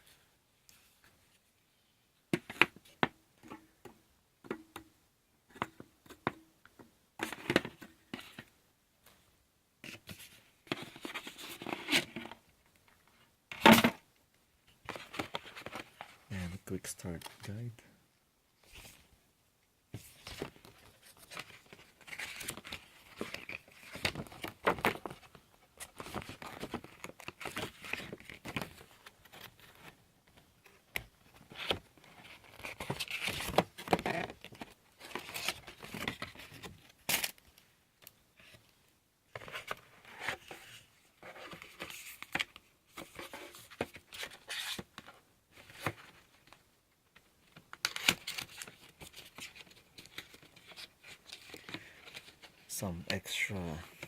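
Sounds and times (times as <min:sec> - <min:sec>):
paper and plastic wrapping rustling: 0:20.0 - 0:30.0, 0:47.4 - 0:52.7.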